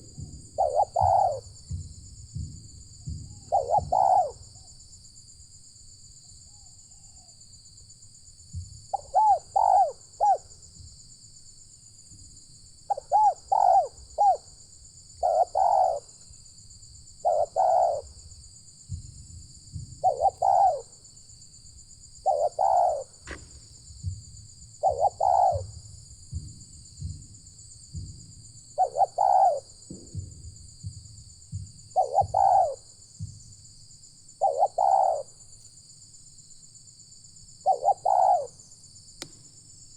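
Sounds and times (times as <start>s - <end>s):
dove cooing: 0.0s - 4.8s, 8.9s - 10.5s, 12.9s - 14.6s, 15.2s - 16.3s, 17.1s - 18.3s, 19.7s - 21.0s, 22.2s - 23.6s, 24.7s - 27.2s, 28.7s - 30.4s, 31.9s - 32.9s, 34.4s - 35.3s, 37.6s - 38.6s.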